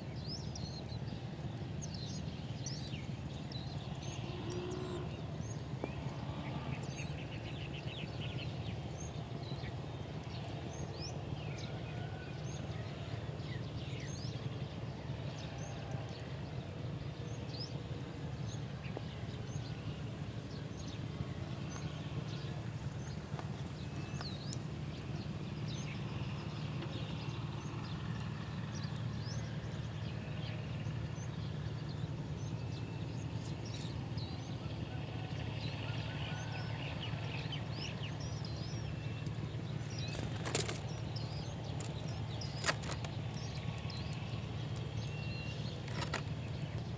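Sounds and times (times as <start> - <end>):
small birds chirping: 18.3 - 46.9.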